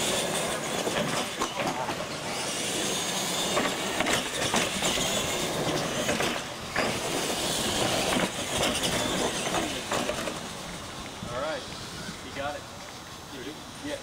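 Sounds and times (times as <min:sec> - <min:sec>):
toy trucks clattering on ramps: 0:00.0 - 0:10.7
toy truck motors whining: 0:00.0 - 0:13.9.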